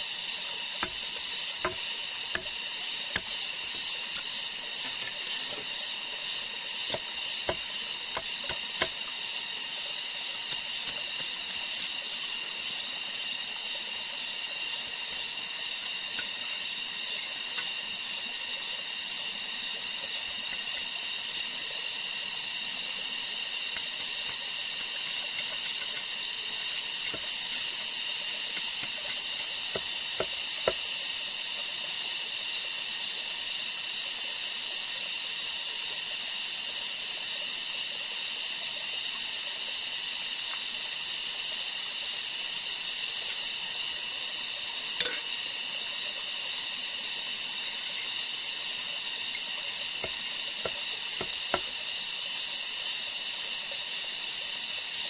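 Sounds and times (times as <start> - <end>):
insect chorus: 0.0 - 31.8.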